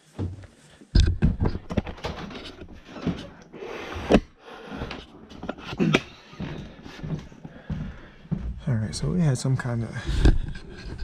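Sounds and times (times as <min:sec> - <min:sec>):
handling knocks and bumps: 0:00.0 - 0:03.4
rubbing and scraping: 0:00.0 - 0:07.1, 0:10.0 - 0:11.0.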